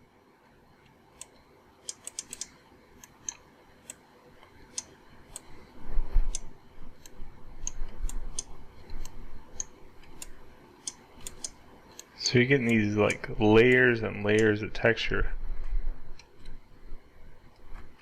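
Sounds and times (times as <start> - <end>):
computer mouse and keyboard clicks: 1.2 - 5.5, 6.3 - 14.5.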